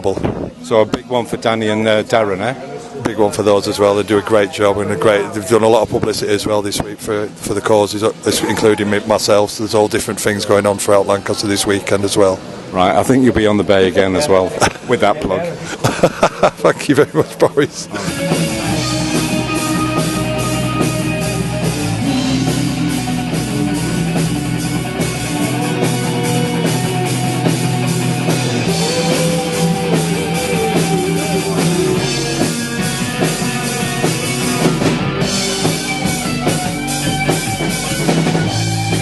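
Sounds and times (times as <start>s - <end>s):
drums keeping a steady beat: 15.8s - 39.0s
rock band playing: 16.2s - 39.0s.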